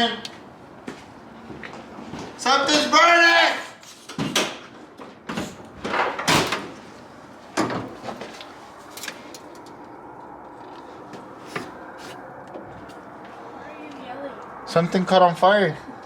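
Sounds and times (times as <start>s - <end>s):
sharp knocks and clunks: 4.1s - 6.8s.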